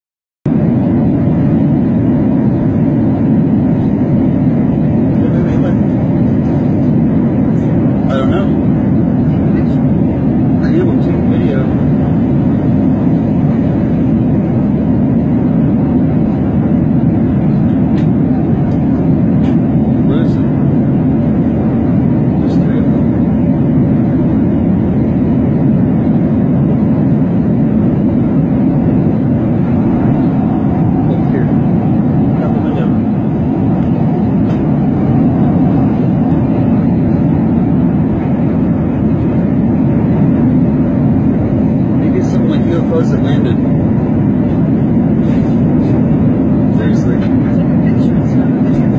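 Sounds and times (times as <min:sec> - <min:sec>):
airflow past fuselage: 0:00.5 - 0:48.9
airliner engines humming: 0:00.5 - 0:48.9
airplane cabin rumble: 0:00.5 - 0:48.9.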